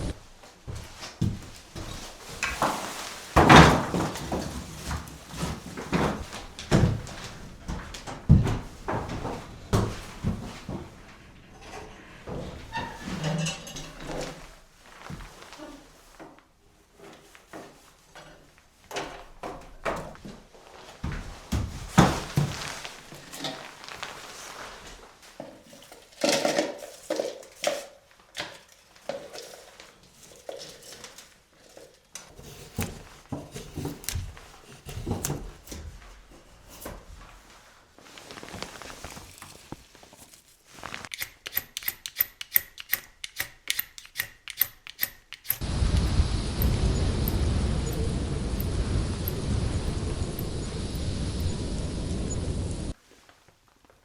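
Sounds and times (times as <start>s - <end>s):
fast sharp ticks: 41.2s - 48.0s.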